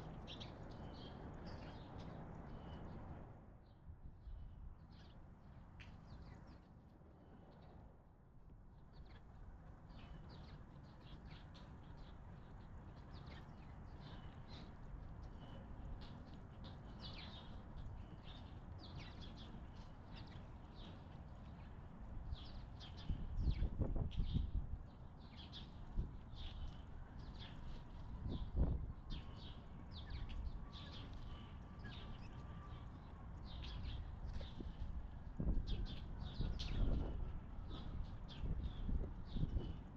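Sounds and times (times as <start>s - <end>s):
small birds chirping: 9.9s - 21.8s, 25.2s - 39.8s.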